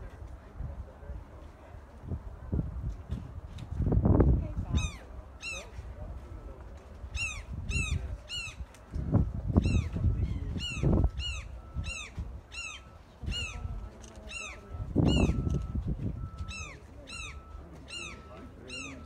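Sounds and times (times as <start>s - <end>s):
low rumbles: 0.0s - 17.7s
bird calling: 7.1s - 8.6s, 9.6s - 19.0s.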